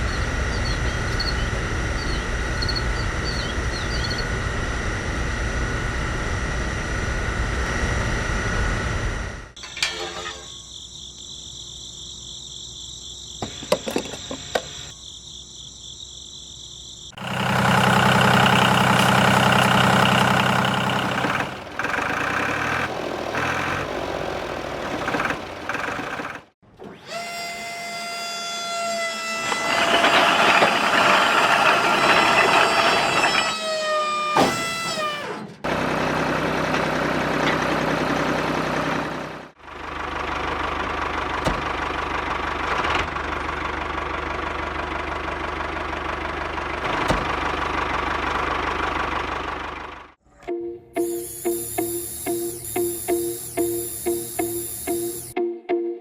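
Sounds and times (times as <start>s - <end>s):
small motor whining: 18.7s - 35.5s, 51.0s - 55.4s.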